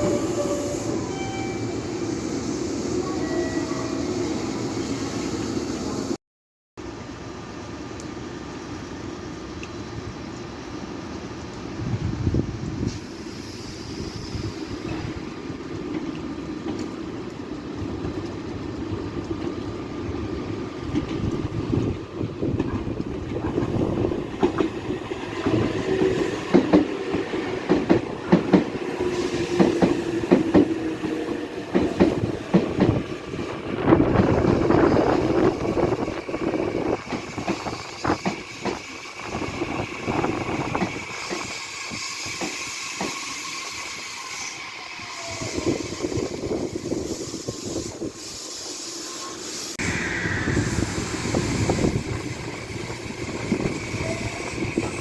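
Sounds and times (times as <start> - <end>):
train running rumble: 7.0 - 43.8
train wheels clacking over rail joints: 22.5 - 33.0, 37.0 - 38.9, 40.5 - 43.6.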